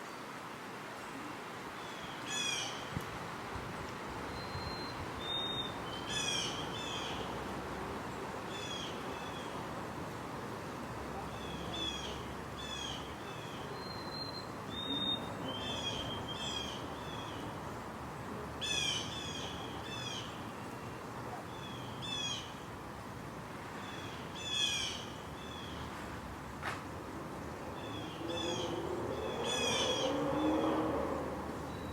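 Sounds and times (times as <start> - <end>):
bird calls: 27.8 - 30.8.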